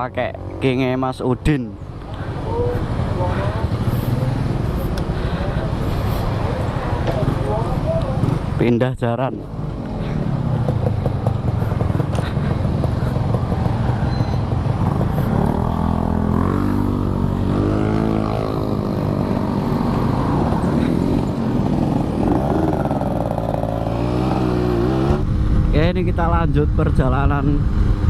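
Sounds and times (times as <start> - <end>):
motorcycle engine accelerating: 9.7 - 26.0.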